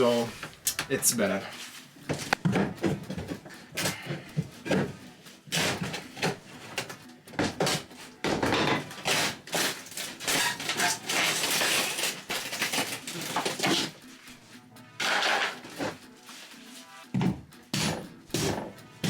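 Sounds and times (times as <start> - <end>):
crunching and cracking panelling: 8.7 - 14.0.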